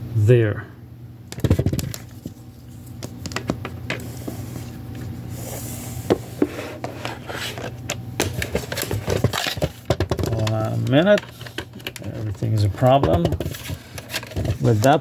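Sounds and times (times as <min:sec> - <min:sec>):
plastic plug clicking and knocking: 0:12.9 - 0:13.5.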